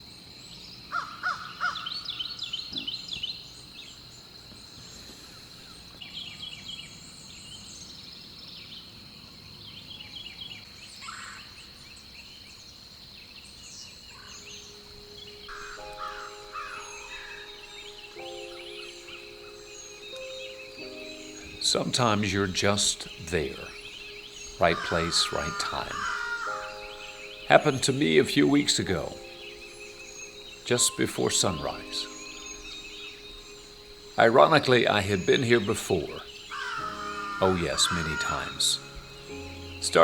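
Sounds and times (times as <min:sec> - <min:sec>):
birds chirping and trilling: 0:00.0 - 0:40.0
sustained music notes: 0:15.1 - 0:40.0.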